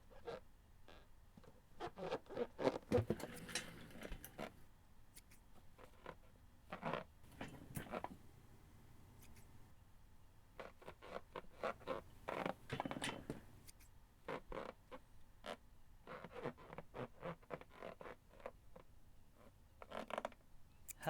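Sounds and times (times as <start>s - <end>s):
rustling squeaking and scraping: 0.0s - 4.6s, 5.8s - 8.2s, 10.6s - 18.8s.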